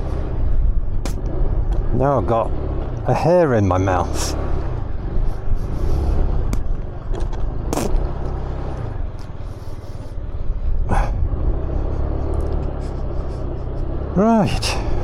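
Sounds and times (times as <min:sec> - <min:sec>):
motorcycle engine rumbling: 0:00.0 - 0:15.0.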